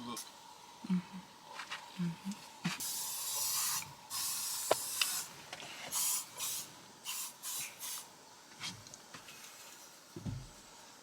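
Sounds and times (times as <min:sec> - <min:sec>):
aerosol spray hissing: 0:02.7 - 0:08.1.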